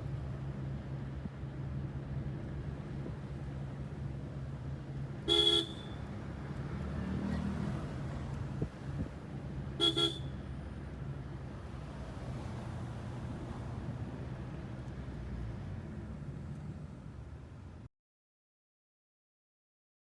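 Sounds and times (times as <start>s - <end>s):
vehicle horn honking: 5.3s - 6.0s, 9.8s - 10.3s.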